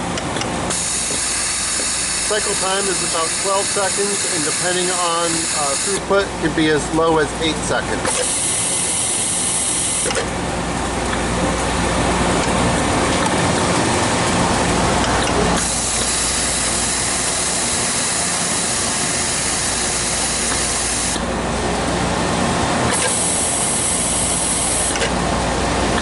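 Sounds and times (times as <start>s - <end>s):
grinder loud high hiss: 0.7s - 6.0s.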